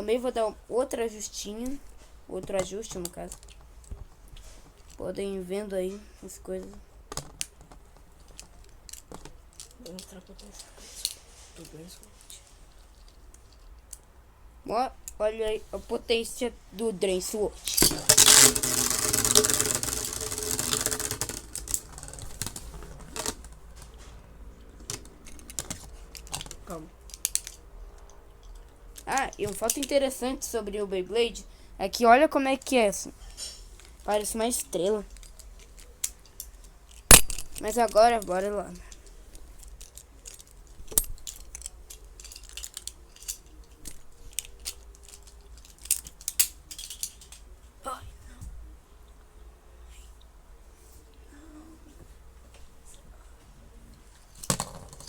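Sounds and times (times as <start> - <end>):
faint steady hum: 0.0 - 55.0
spinning tops clashing in plastic stadium: 17.6 - 24.0
clicks and knocks of slowing tops: 17.7 - 24.0.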